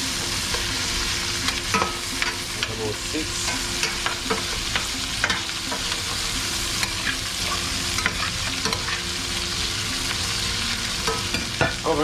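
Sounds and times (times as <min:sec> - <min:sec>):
vegetables sizzling in a pot: 0:00.0 - 0:12.0.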